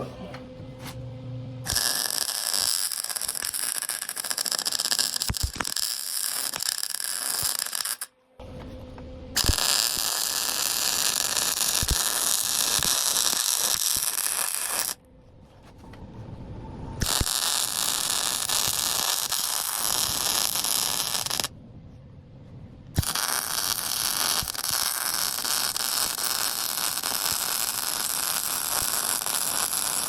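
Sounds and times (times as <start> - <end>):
arc welding crackling: 1.7 - 8.1, 9.4 - 15.0, 17.0 - 21.5, 23.0 - 30.0.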